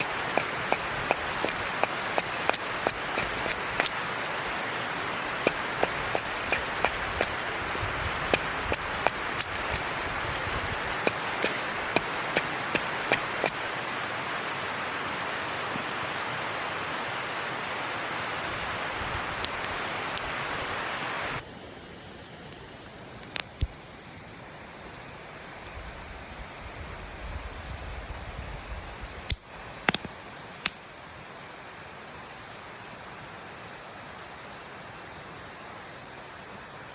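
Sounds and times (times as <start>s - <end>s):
wood fire crackling: 0.0s - 13.9s, 18.2s - 21.4s, 22.5s - 23.8s, 29.2s - 31.0s.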